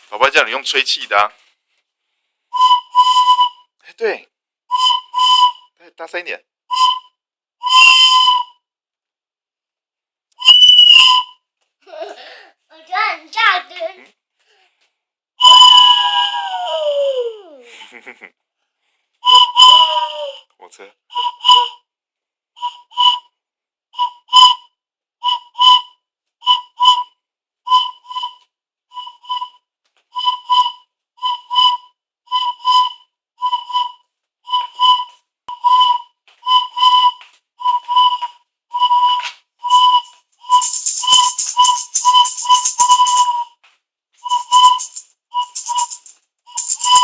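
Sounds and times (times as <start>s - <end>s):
toy train whistle toots: 2.6s - 3.7s, 4.7s - 5.8s, 6.7s - 8.6s, 10.4s - 11.4s, 15.4s - 16.5s, 19.2s - 20.4s, 21.1s - 21.9s, 22.6s - 23.3s, 24.0s - 29.6s, 30.2s - 43.6s, 44.2s - 47.0s.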